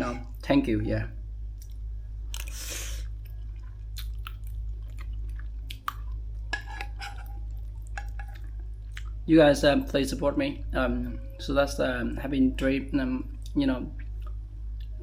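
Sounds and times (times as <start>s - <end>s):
steady low hum: 0.0s - 15.0s
person chewing food: 1.6s - 9.3s
wet mouth clicks: 3.6s - 6.2s.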